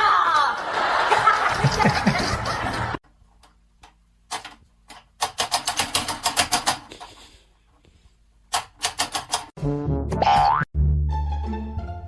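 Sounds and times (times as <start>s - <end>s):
rapid sharp clicks: 3.8s - 6.9s, 8.5s - 9.5s.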